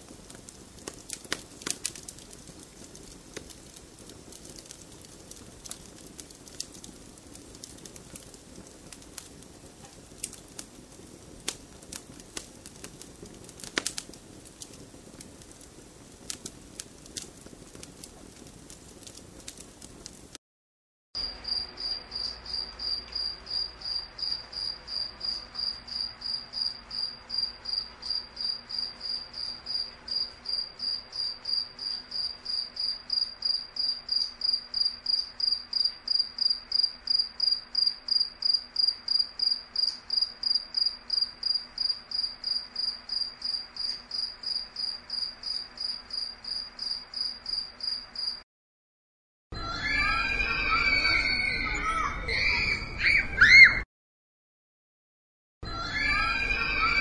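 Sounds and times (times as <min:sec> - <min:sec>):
cricket chirping: 0:21.2 - 0:48.4.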